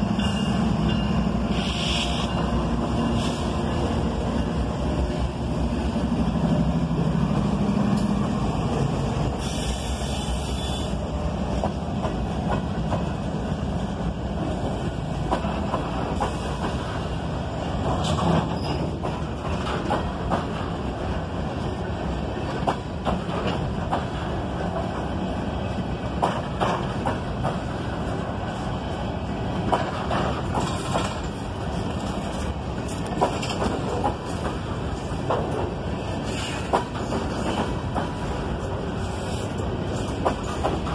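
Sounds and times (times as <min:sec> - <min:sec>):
freight train wheels rumbling: 0:00.0 - 0:40.9
wheels clacking over rail joints: 0:17.8 - 0:25.1, 0:26.1 - 0:28.2, 0:29.6 - 0:40.9.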